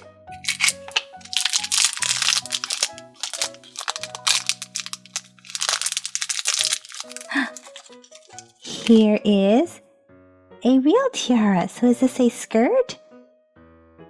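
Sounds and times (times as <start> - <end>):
background music: 0.0 - 13.4
wrapping being torn open: 0.4 - 9.0.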